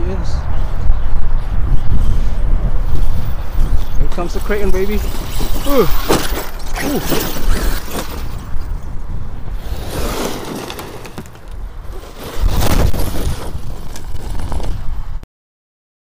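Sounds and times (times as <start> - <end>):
rc truck driving over dirt: 1.8 - 15.2
tyres crunching on ground: 4.1 - 8.8, 9.6 - 14.9.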